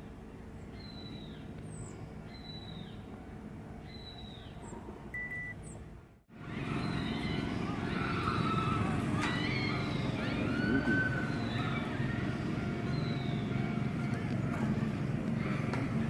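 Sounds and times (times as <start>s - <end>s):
outdoor background noise: 0.0s - 16.0s
bird calling: 3.8s - 15.7s.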